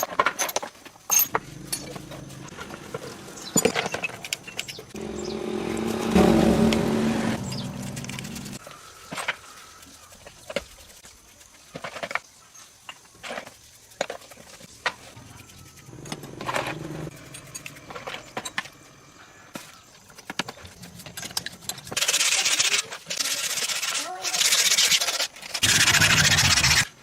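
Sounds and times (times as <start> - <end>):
metal parts and tools clicking: 0.0 - 5.0, 15.4 - 18.9
scraping metal: 1.1 - 8.6, 15.8 - 18.8.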